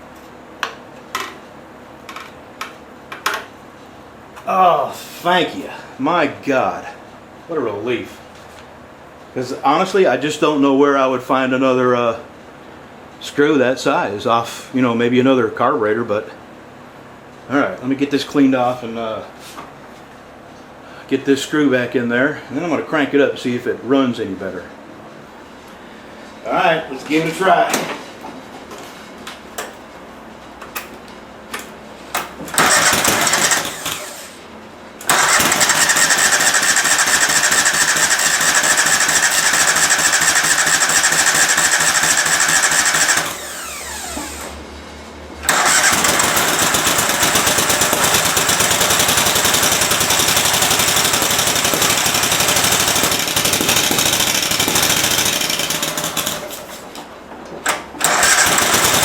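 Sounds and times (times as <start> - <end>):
engine cranking: 32.5 - 34.3, 35.0 - 44.5, 45.4 - 56.8, 58.0 - 59.0
lawn tractor engine running: 32.5 - 34.3, 35.0 - 44.5, 45.4 - 56.8, 58.0 - 59.0.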